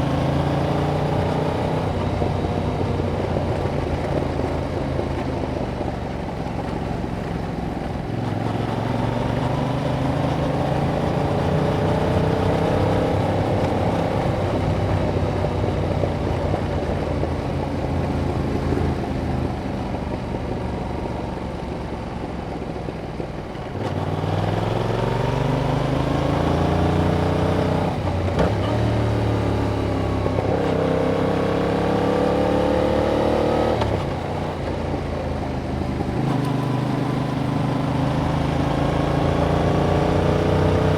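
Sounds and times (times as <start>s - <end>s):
motorcycle engine revving: 8.1s - 20.2s, 23.8s - 40.9s.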